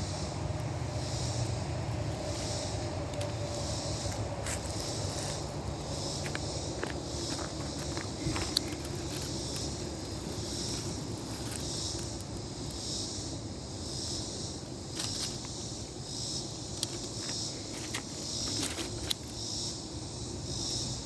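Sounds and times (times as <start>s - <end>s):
steady low rumble: 0.0s - 13.6s
high insect chorus: 0.0s - 21.0s
small clicks: 16.8s - 19.4s.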